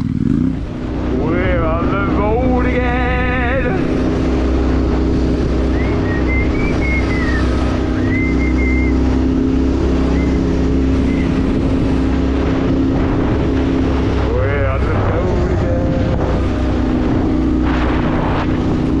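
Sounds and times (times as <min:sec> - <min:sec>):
vehicle engine running: 0:00.0 - 0:19.0
wind buffeting microphone: 0:00.0 - 0:19.0.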